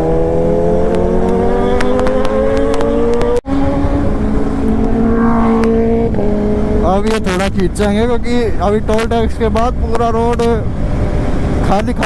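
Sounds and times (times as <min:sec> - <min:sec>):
motorcycle engine accelerating: 0:00.0 - 0:08.3
low wind rumble: 0:00.0 - 0:12.0.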